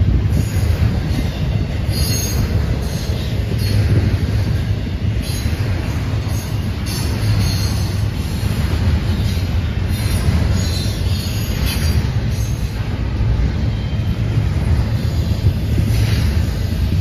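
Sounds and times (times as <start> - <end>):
train wheels rumbling on rail: 0.0 - 17.0
high wheel squeals: 0.4 - 12.9.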